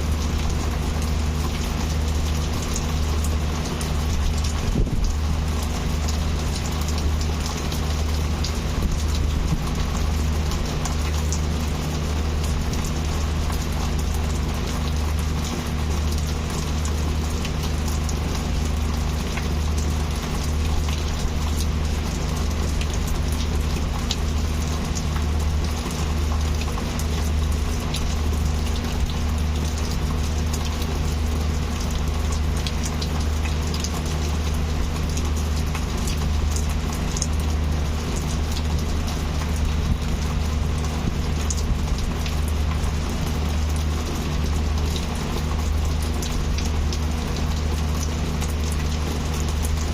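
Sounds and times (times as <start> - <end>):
heavy rain falling: 0.0 - 49.9
raindrops ticking on a surface: 0.0 - 49.9.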